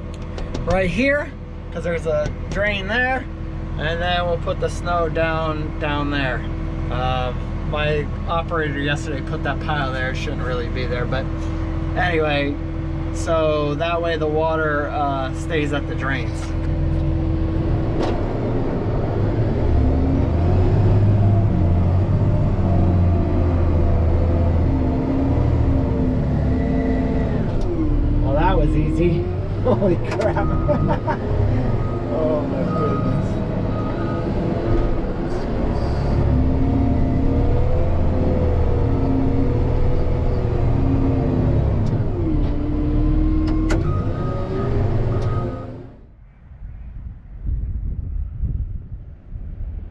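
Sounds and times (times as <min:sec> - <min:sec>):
snowplow engine rumbling: 0:00.0 - 0:46.1
reversing alarm beeping: 0:30.3 - 0:34.5, 0:43.5 - 0:45.8.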